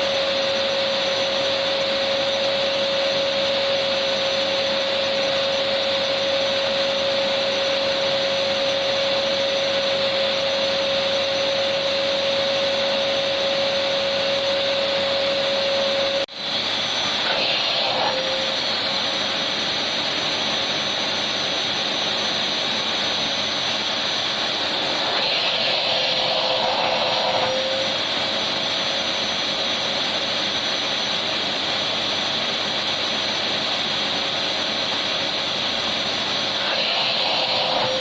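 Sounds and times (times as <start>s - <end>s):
vacuum cleaner running: 0.0s - 38.0s.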